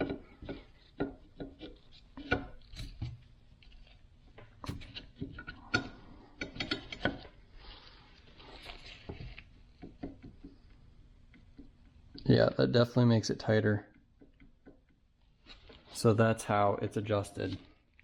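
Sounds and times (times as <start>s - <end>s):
metal clicks and knocks of tools: 4.6s - 7.3s
soft scraping rustle: 6.0s - 9.8s, 15.2s - 16.3s.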